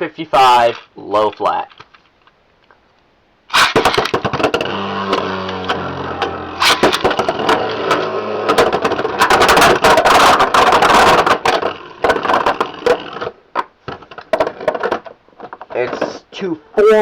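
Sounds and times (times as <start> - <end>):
spinning tops clattering together: 3.5 - 12.9.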